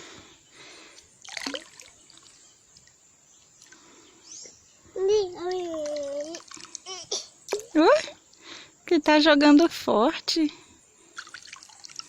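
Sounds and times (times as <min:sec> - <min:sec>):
river water trickling: 0:00.4 - 0:08.7, 0:10.8 - 0:12.0.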